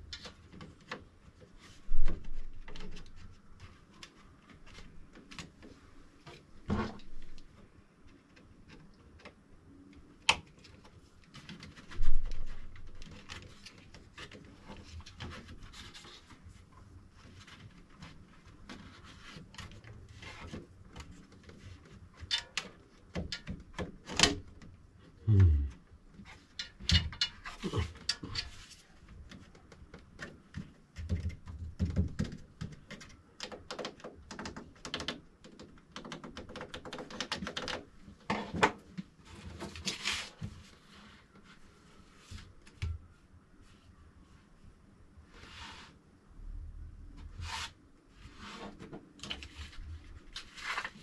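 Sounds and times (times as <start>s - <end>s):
clicks taps and knocks of handling: 17.5s - 24.8s, 29.1s - 39.6s.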